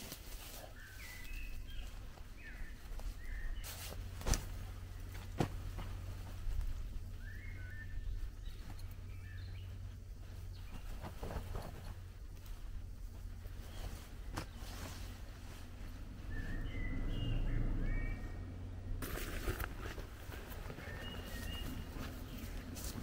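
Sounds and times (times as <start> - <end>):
rustling: 0.0 - 17.3, 19.0 - 23.0
small birds chirping: 0.0 - 23.0
steady low rumble: 0.0 - 23.0.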